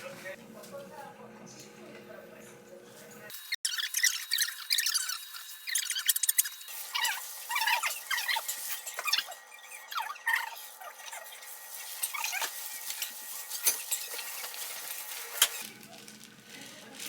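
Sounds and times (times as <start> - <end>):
food being mixed by hand: 3.7 - 17.0.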